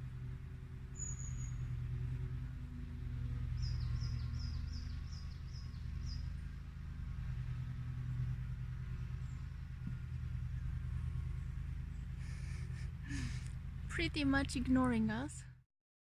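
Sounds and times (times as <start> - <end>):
songbird calling: 0.9 - 1.8, 3.5 - 6.4.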